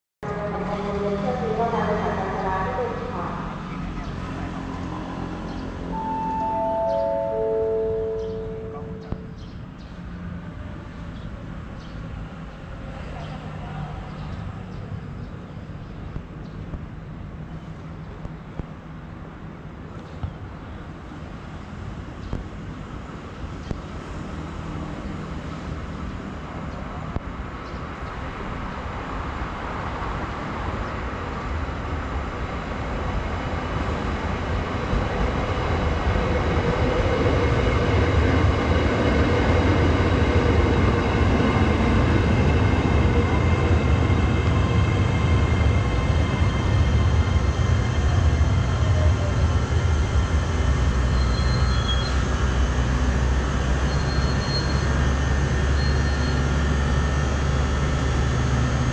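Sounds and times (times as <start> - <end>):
train rumbling on rails: 0.2 - 58.9
faint high tones: 5.9 - 9.4.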